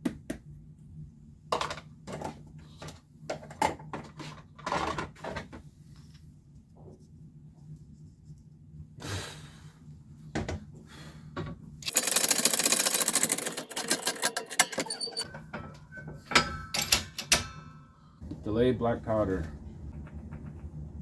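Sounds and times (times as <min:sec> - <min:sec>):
small clicks and rattles: 0:11.8 - 0:15.3.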